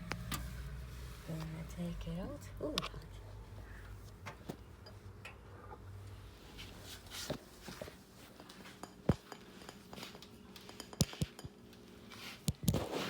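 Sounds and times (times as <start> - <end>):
dishes clinking on counter: 8.6 - 11.6.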